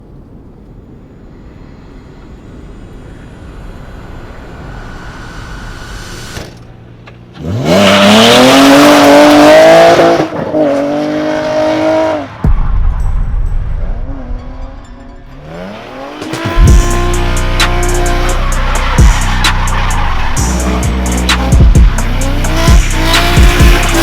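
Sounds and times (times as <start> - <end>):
car engine revving: 3.0 - 12.4, 15.3 - 24.0.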